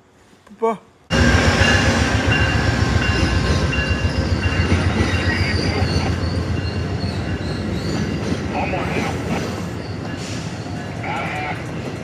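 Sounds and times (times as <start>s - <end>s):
train wheels rumbling on rail: 1.1s - 12.0s
wheels squealing: 3.1s - 11.0s.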